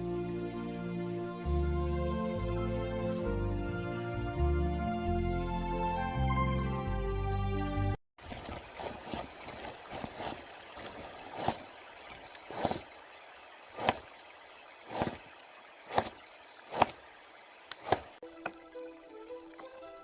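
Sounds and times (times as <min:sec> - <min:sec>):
knife chopping on cutting board: 0:15.9 - 0:17.0, 0:17.8 - 0:18.1.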